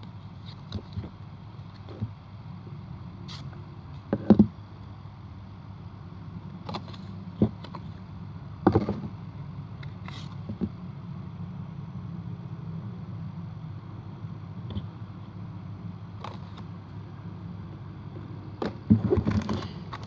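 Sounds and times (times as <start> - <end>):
steady low hum: 0.0 - 20.0
wallet handling knocks and rustles: 18.6 - 20.0.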